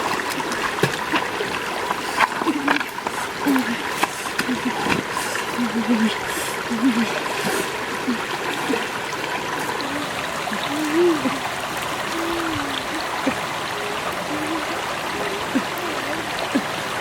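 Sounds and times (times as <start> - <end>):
water flowing in a stream: 0.0 - 17.0
short low vocal sounds: 9.6 - 16.8.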